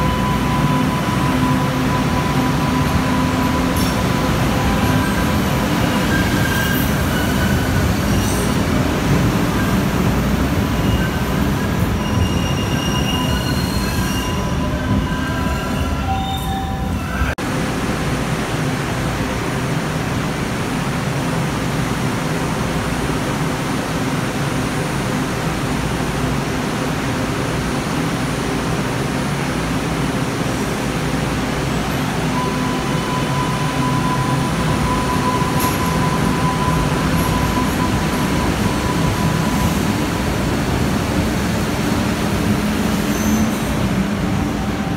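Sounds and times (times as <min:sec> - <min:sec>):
light rail train rumbling: 0:00.0 - 0:44.9.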